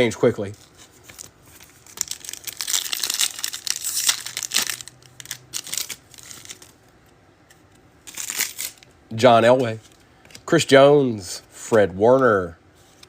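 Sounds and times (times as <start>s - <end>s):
foil wrapper tearing and crinkling: 1.2s - 6.7s, 8.1s - 8.9s.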